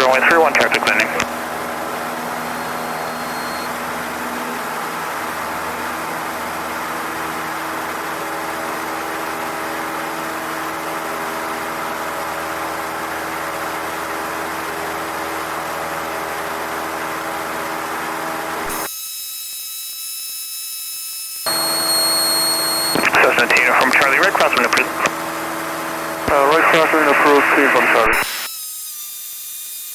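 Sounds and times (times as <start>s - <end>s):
light aircraft engine and propeller: 1.3s - 18.7s
hum with high whistle tones: 1.8s - 4.0s, 21.5s - 25.1s
faint high electronic tones: 2.0s - 3.8s, 21.5s - 25.1s.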